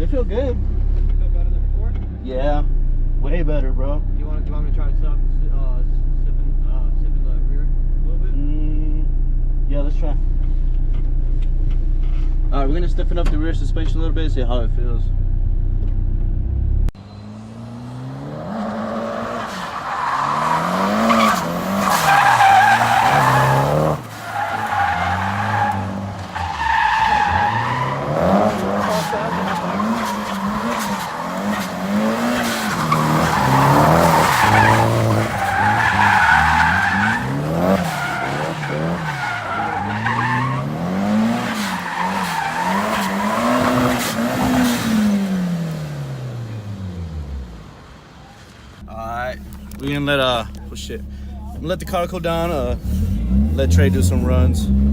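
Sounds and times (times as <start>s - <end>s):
car engine revving: 0.0s - 54.9s
tyres squealing: 18.7s - 45.2s.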